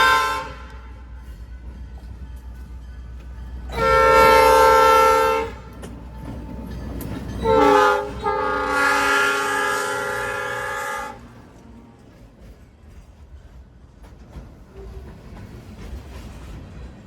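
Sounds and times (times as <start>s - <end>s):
locomotive air horn: 0.0s - 1.0s, 3.7s - 5.8s, 7.4s - 11.3s
locomotive rumble: 0.0s - 17.0s.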